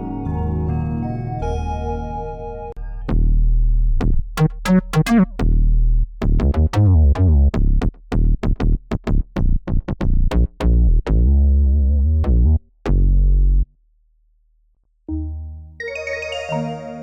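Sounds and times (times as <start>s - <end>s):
deep synth bass: 0.0s - 13.7s
plucky synth notes: 4.4s - 5.4s, 15.1s - 17.0s.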